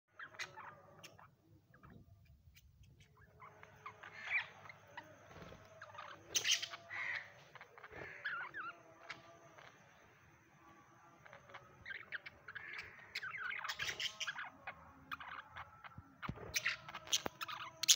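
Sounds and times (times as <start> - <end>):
budgerigars chirping: 5.7 - 9.7, 11.2 - 15.4
harsh bird squawk: 6.3 - 8.7.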